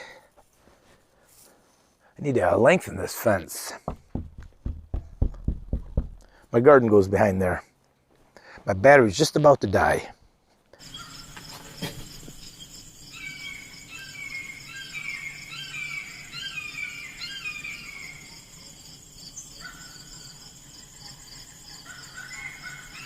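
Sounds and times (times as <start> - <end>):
insects trilling: 10.8 - 23.0.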